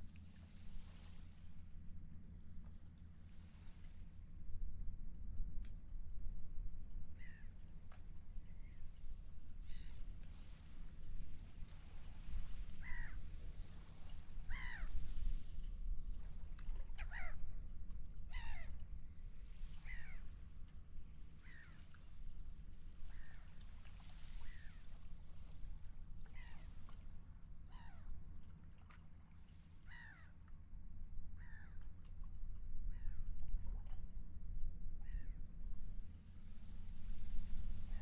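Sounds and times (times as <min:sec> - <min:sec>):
low rumble of wind and sea: 0:00.0 - 0:38.0
seagulls calling: 0:12.8 - 0:13.2, 0:14.5 - 0:15.0.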